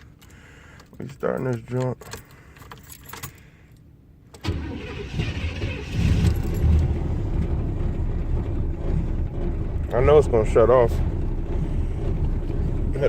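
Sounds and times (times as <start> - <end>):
car engine starting and running: 4.3 - 13.0.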